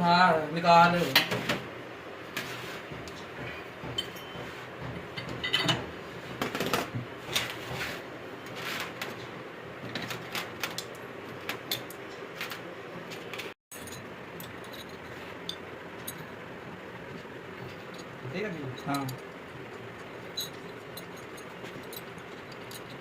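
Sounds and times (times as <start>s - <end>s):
workshop hum: 0.0s - 23.0s
metal tools and bolts clinking: 4.0s - 4.4s, 5.2s - 5.8s, 13.7s - 16.4s, 17.6s - 23.0s.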